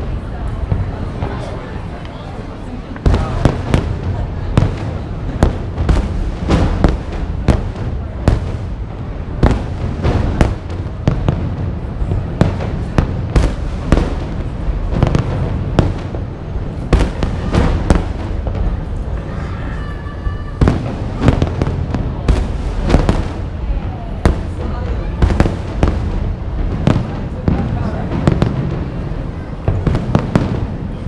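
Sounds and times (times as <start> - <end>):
continuous low rumble: 0.0 - 31.0.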